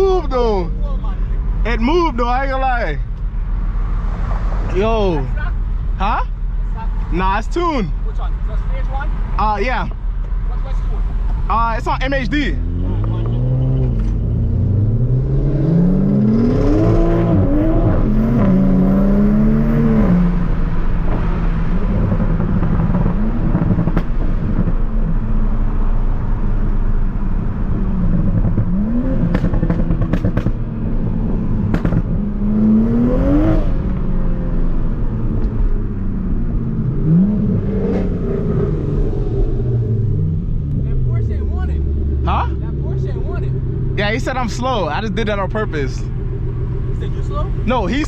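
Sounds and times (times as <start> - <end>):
car engine accelerating hard: 10.4 - 48.0.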